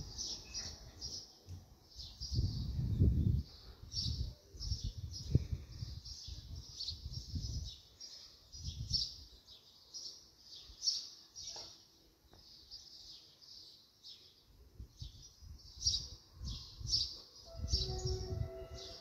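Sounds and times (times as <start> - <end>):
small birds chirping: 0.0 - 18.4
wind rumbling on microphone: 2.0 - 7.8, 8.6 - 9.2, 14.8 - 19.0.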